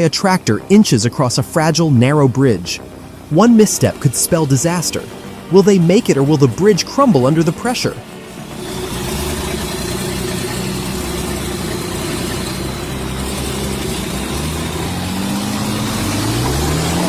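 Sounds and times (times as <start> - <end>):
tractor engine under load: 0.0 - 17.0.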